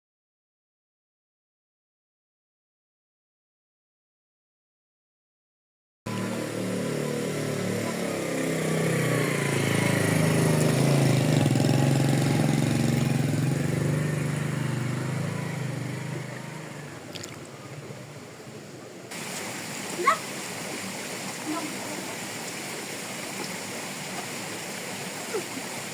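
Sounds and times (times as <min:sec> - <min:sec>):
vehicle engine passing by: 0:06.1 - 0:18.4.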